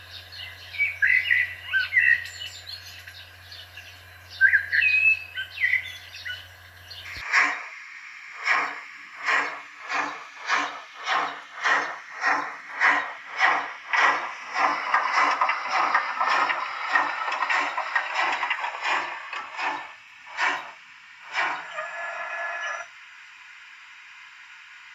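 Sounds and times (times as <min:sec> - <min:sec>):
bird chirps: 0:00.0 - 0:07.2
steam exhaust chuffs from speaker: 0:00.0 - 0:22.9.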